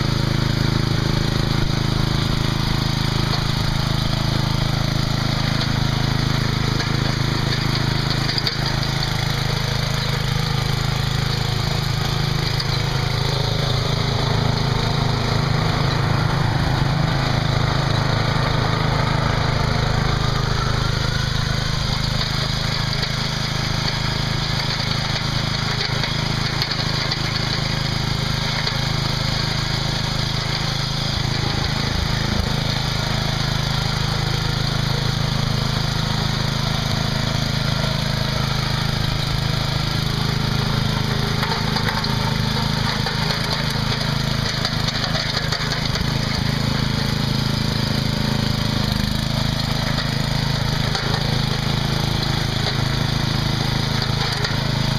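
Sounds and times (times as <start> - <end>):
lawn mower engine running: 0.0 - 54.9.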